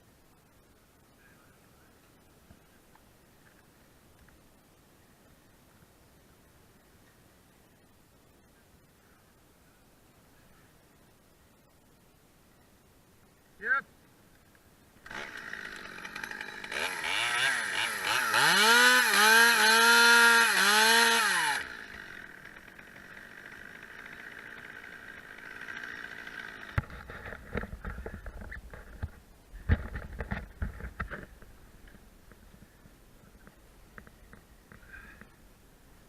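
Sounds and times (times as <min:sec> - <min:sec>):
chainsaw revving: 0:15.0 - 0:27.4.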